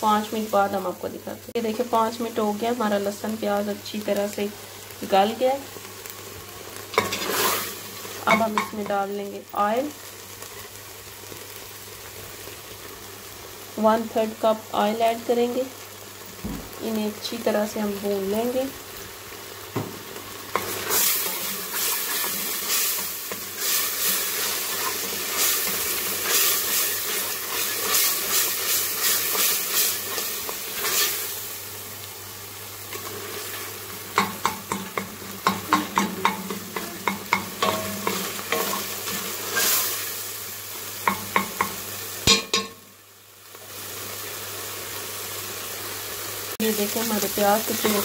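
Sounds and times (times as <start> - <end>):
food sizzling in hot oil: 0.0 - 48.0
utensil scraping and knocking pot: 34.1 - 39.8.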